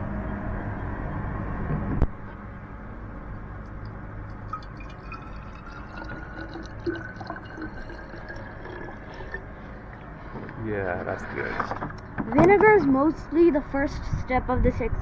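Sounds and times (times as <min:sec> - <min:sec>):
liquid trickling into bottle: 0:04.3 - 0:10.3.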